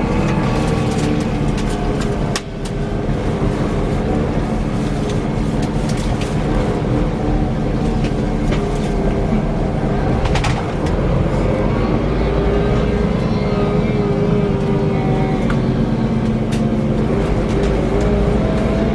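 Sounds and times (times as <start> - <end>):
diesel engine droning: 0.0 - 18.9
whirring whine: 0.0 - 18.9.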